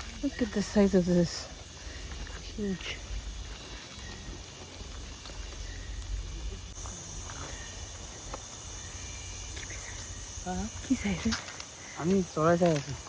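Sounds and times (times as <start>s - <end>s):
low outdoor rumble: 0.0s - 11.2s
high-pitched insect chorus: 0.0s - 13.0s.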